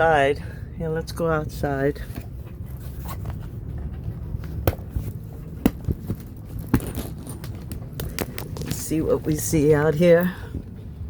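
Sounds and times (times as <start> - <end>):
low steady rumble: 0.0 - 11.0
scraping and rustling: 2.0 - 9.8.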